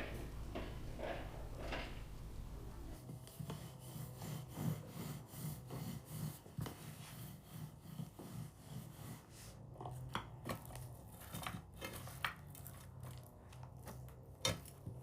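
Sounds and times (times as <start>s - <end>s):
low hum: 0.0s - 3.0s
scraping strokes: 0.0s - 9.6s.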